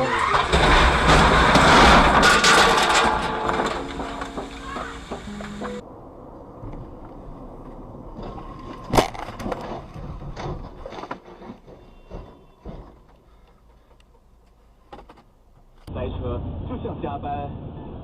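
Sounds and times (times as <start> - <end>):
car crash impact bang: 0.0 - 5.8
debris knocks and rattles: 0.0 - 5.8, 7.6 - 13.4
low road rumble: 0.0 - 18.0.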